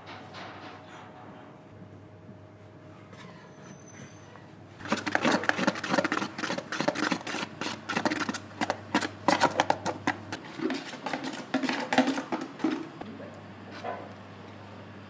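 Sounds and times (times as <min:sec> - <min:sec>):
sharp clicks and scratchy strokes: 0:04.8 - 0:12.6.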